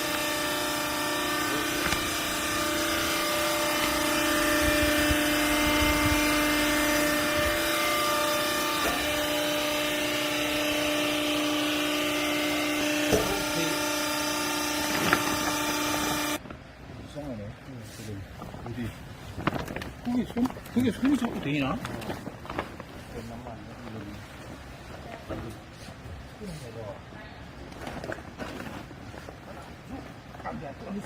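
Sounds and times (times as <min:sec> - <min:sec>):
hydraulic motor and pump humming: 0:00.0 - 0:17.4.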